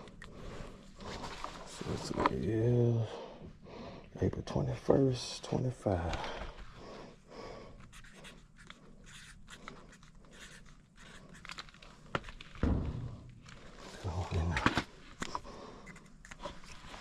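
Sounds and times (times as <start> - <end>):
marker scratching: 7.9 - 11.6
dull thump: 12.6 - 13.4.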